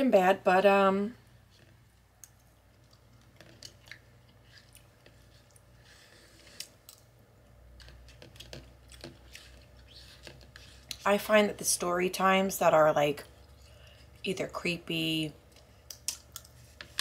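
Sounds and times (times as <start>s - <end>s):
faint chewing: 1.5s - 11.1s, 13.2s - 14.3s.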